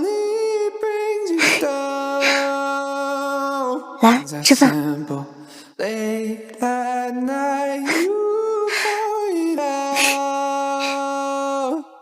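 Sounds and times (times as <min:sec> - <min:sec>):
person singing slow melody: 0:00.0 - 0:12.0
singer breathing: 0:01.4 - 0:02.6, 0:05.4 - 0:05.8, 0:07.8 - 0:08.1, 0:08.7 - 0:09.1, 0:09.8 - 0:11.1.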